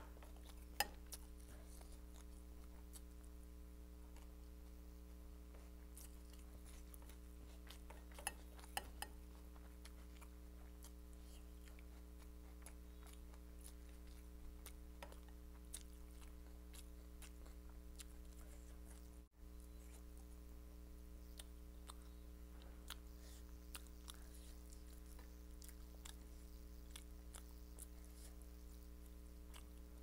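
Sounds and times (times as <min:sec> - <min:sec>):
low electrical hum: 0:00.0 - 0:30.0
chewing and wet mouth clicks: 0:06.0 - 0:19.2, 0:22.8 - 0:30.0.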